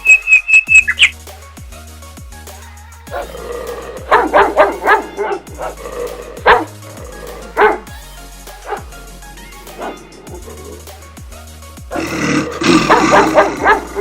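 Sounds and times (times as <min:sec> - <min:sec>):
background music: 0:00.0 - 0:14.0
dog barking: 0:03.1 - 0:07.9, 0:08.6 - 0:08.9, 0:09.6 - 0:10.7, 0:11.9 - 0:14.0.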